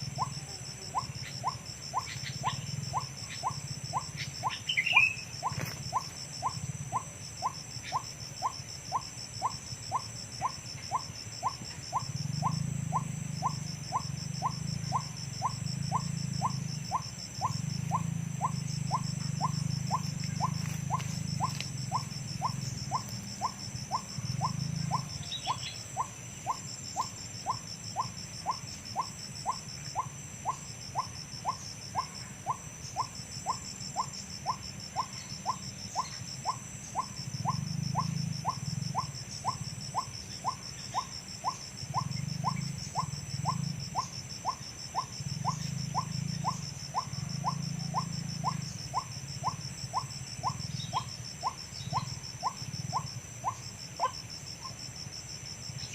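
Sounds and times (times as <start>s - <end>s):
high pulsing buzz: 0.0s - 55.9s.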